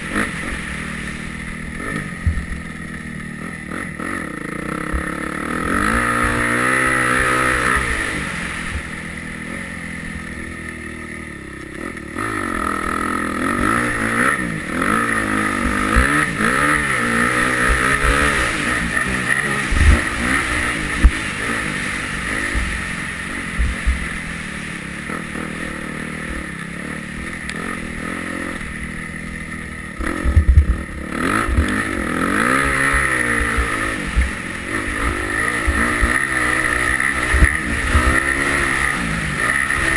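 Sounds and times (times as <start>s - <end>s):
motocross engine revving: 0.0s - 39.9s
low thumps: 30.2s - 31.7s.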